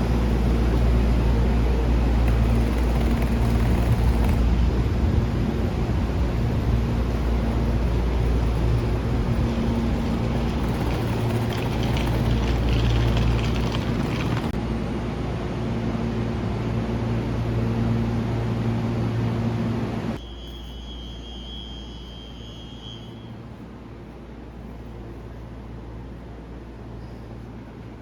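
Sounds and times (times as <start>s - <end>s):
vehicle running: 0.0s - 14.8s
train rumbling: 0.0s - 20.2s
thin high whine: 20.2s - 23.6s.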